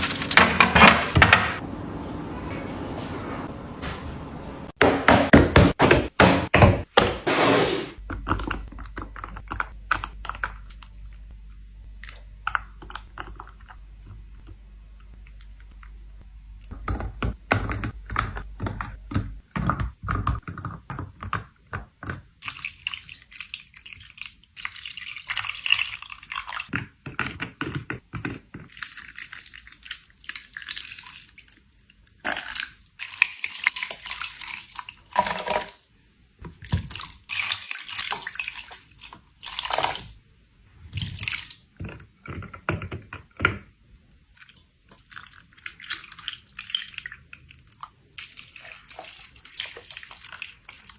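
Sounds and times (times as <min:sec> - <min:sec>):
containers knocking and thunking: 0:04.8 - 0:10.6, 0:41.8 - 0:43.8.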